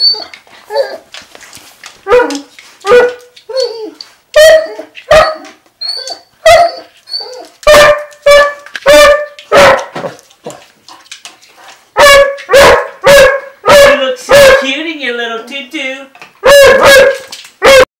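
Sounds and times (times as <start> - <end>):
dog barking: 2.1 - 3.2, 4.4 - 5.5, 6.4 - 6.9, 7.7 - 10.1, 12.0 - 14.8, 16.4 - 17.9.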